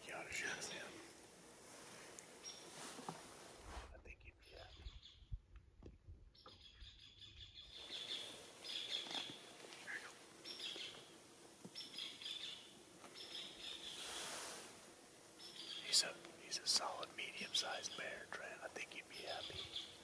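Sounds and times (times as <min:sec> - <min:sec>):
faint songbird chirps: 0:02.2 - 0:02.9, 0:04.2 - 0:05.5, 0:06.3 - 0:14.4, 0:15.3 - 0:20.0.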